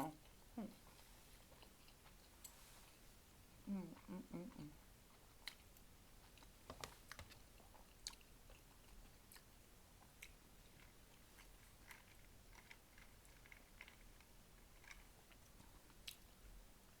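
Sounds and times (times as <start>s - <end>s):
person chewing: 0.0s - 3.0s, 3.6s - 16.3s.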